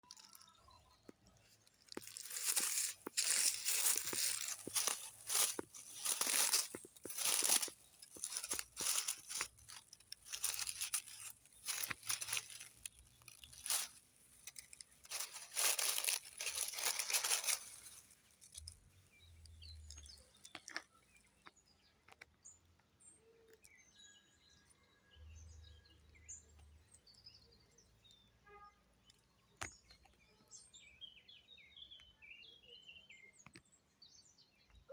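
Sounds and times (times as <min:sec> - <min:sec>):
crunching and rustling: 0:00.0 - 0:21.5
small birds chirping: 0:00.0 - 0:34.9.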